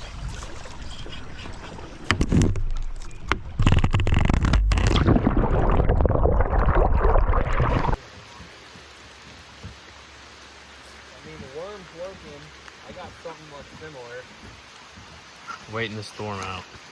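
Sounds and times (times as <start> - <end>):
kayak scraping and knocking: 0.0 - 5.0
rain hissing: 6.5 - 16.9.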